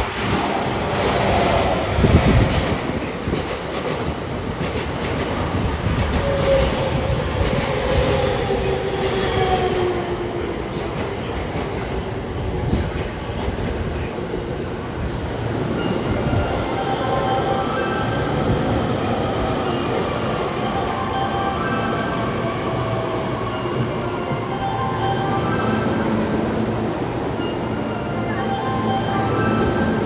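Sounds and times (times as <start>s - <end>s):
train wheels rumbling on rails: 0.0s - 17.5s.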